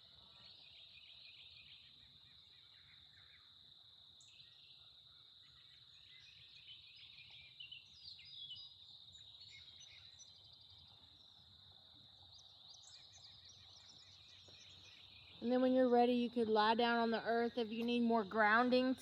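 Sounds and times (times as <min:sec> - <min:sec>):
birds chirping: 0:05.5 - 0:19.0.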